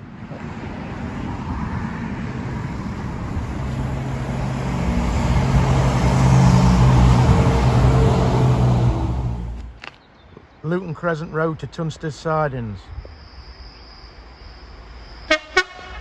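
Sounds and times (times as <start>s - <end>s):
train passing: 0.0s - 9.8s.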